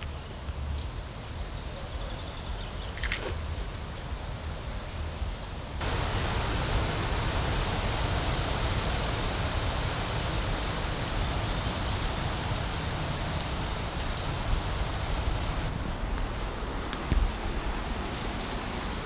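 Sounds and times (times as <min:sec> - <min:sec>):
river water rushing: 0:05.8 - 0:19.0.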